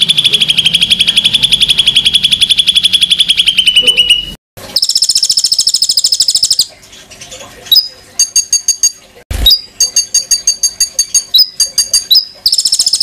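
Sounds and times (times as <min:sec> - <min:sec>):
songbird trilling: 0:09.5 - 0:13.0.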